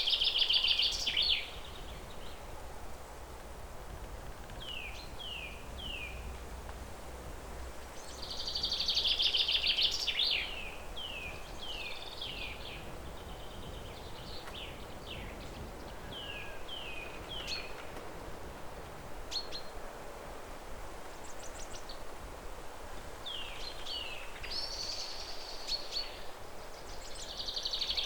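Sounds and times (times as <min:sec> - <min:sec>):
small songbirds chirping: 0:00.0 - 0:06.6, 0:07.2 - 0:19.9, 0:21.2 - 0:28.0
low outdoor background noise: 0:00.0 - 0:28.0.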